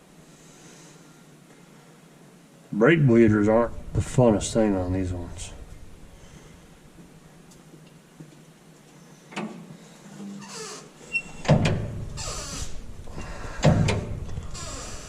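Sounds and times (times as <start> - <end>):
heavy clunks: 11.3 - 15.0
rushing hiss: 12.2 - 15.0.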